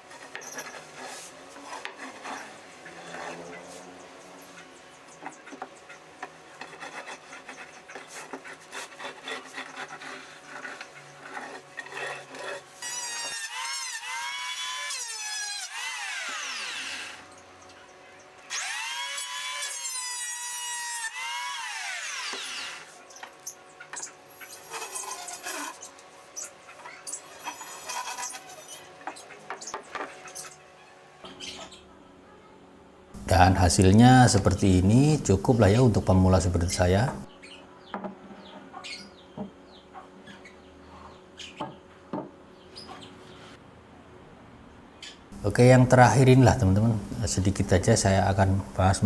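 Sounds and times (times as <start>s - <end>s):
wood scraping and knocking: 0.1s - 3.5s
electric planer shaving wood: 6.6s - 17.2s, 18.5s - 22.9s.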